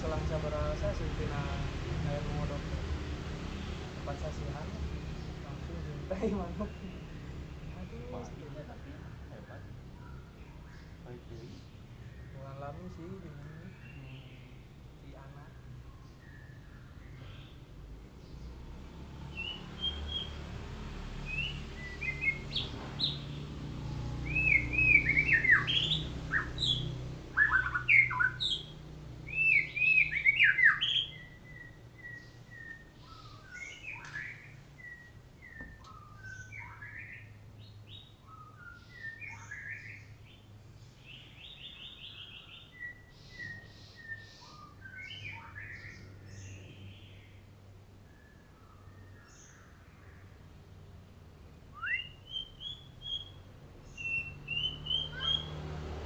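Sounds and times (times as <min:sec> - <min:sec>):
bird singing whistled phrases: 0:19.3 - 0:20.4, 0:21.2 - 0:23.3, 0:24.2 - 0:28.7, 0:29.3 - 0:37.3, 0:37.9 - 0:40.1, 0:41.4 - 0:47.1, 0:51.7 - 0:55.6.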